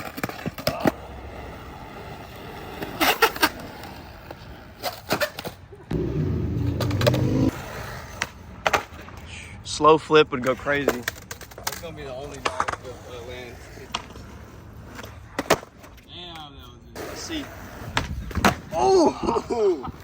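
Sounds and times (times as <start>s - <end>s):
skateboard clacking on concrete: 0.0s - 1.0s, 10.4s - 16.5s
skateboard wheels rolling: 0.0s - 9.2s, 10.5s - 16.0s, 17.0s - 18.8s.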